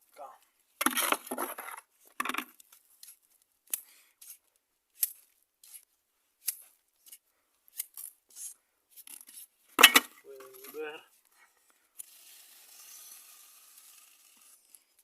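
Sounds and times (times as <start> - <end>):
metal trowel scraping mortar: 0.8 - 1.8, 12.0 - 14.8.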